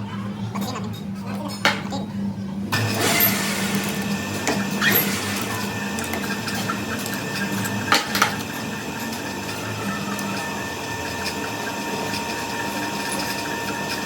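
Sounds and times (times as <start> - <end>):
workshop machine humming: 0.0 - 14.0.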